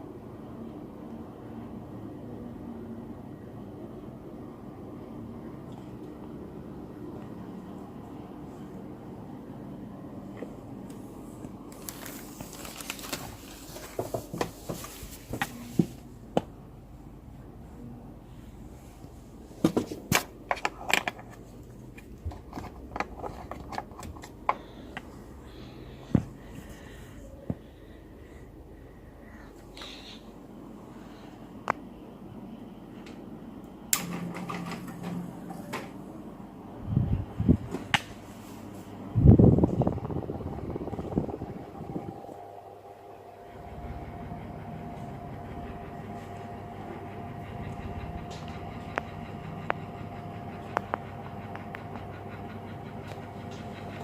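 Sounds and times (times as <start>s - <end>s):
ceiling fan motor humming: 0.0s - 54.0s
sharp clicks and crinkling: 11.7s - 14.5s.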